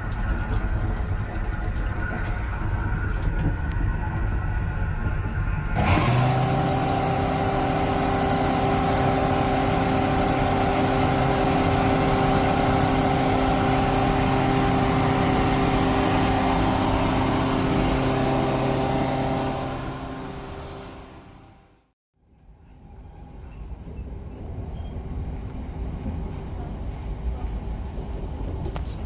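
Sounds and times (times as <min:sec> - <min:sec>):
train motor whine: 0:02.8 - 0:21.9
train wheels rumbling on rails: 0:22.5 - 0:29.0.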